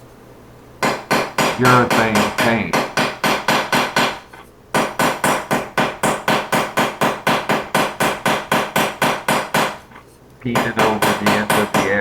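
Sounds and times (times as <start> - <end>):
sharp ringing knocks: 0.8 - 12.0.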